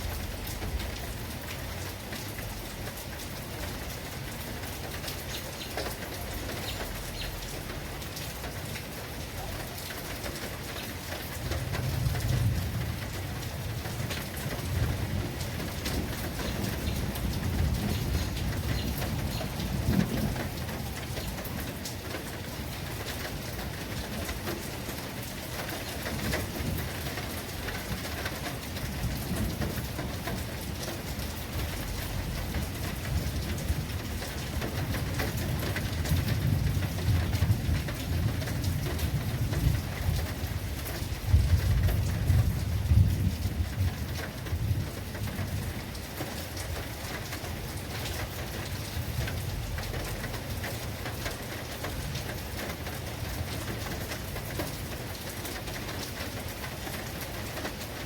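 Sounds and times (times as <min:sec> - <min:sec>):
rain falling: 0:00.0 - 0:58.0
low thunder rumbles: 0:11.4 - 0:24.7, 0:25.9 - 0:47.2.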